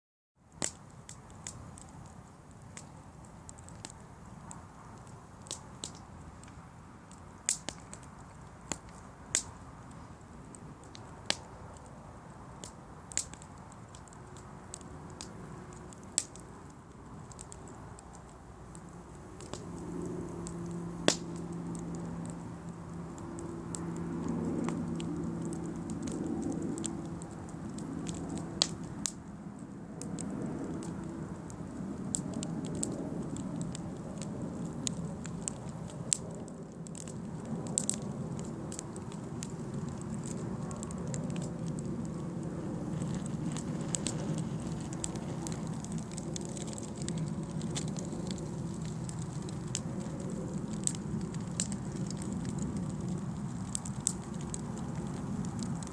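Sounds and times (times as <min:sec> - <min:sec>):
wood crackling in a fire: 0:00.4 - 0:55.9.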